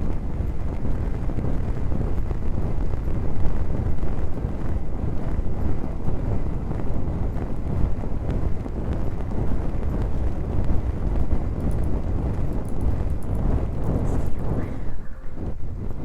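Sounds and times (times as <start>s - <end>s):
rubbing on microphone: 13.6s - 16.0s.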